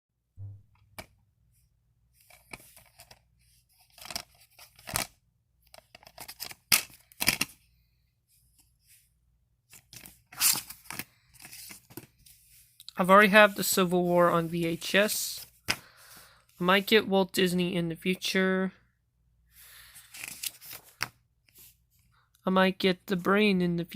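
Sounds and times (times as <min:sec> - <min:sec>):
tearing and rustling: 0:09.8 - 0:11.9.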